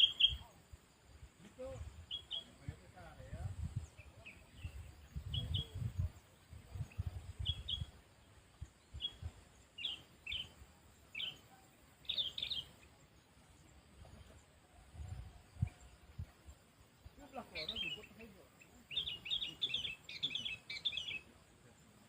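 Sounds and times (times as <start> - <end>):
bulbul chirping: 0.0 - 0.6, 2.0 - 2.6, 8.9 - 13.0, 17.3 - 21.3.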